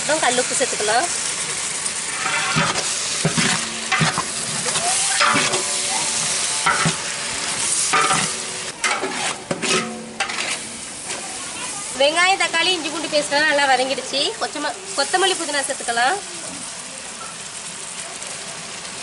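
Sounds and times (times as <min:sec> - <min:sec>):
vegetables sizzling in hot oil: 0:00.0 - 0:19.0
metal ladle scraping pot: 0:02.1 - 0:11.2.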